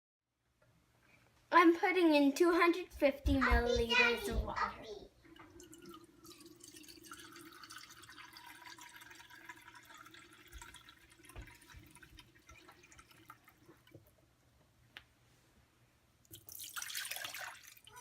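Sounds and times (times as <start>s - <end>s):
water trickling and dripping: 5.3s - 14.2s, 16.2s - 18.0s.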